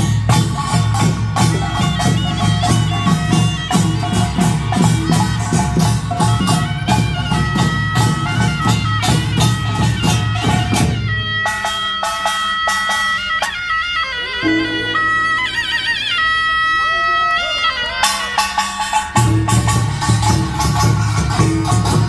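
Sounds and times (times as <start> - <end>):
hourglass drum beats: 0.0 - 13.6, 18.0 - 22.0
barrel drums: 0.0 - 16.6, 18.0 - 22.0
piercing shawm melody: 0.0 - 22.0.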